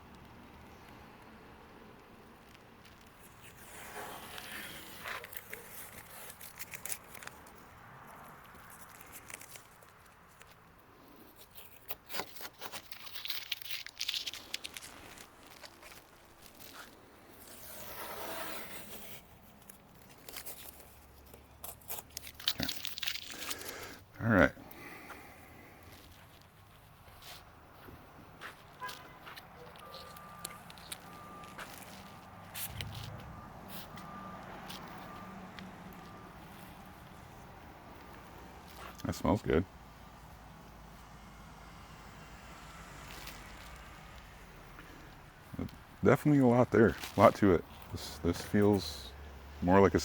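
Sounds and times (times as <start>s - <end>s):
towel rubbing on car paint: 3.4s - 6.4s.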